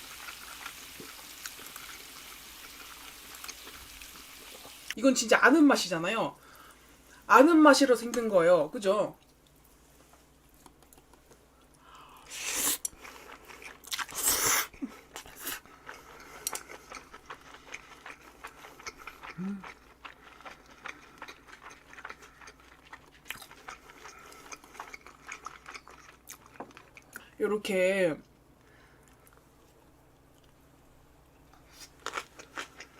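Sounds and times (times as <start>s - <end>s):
chewing and crunching food: 0.0s - 5.0s, 12.8s - 27.4s, 31.4s - 32.9s.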